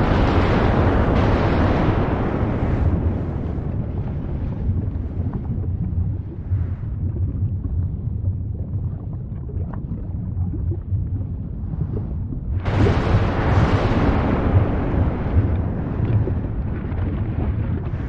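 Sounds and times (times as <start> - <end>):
roar of a volcanic blast: 0.0 - 7.0, 12.6 - 18.0
faint crackles: 0.0 - 10.1, 11.7 - 18.0
volcano deep rumble: 0.0 - 18.0.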